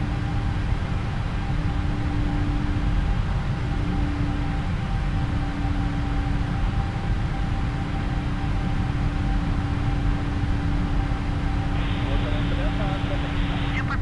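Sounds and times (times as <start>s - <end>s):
jet engine and airflow noise: 0.1s - 14.0s
steady low hum: 10.9s - 14.0s.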